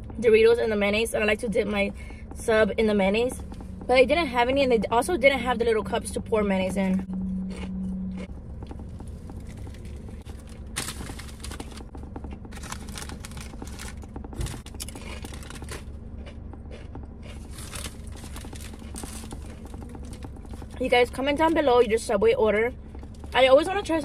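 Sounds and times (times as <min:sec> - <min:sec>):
chewing sandwich: 0:07.5 - 0:20.8
crunching tortilla chips: 0:07.5 - 0:20.8
paper wrapper crinkling: 0:09.0 - 0:11.9, 0:12.5 - 0:15.8.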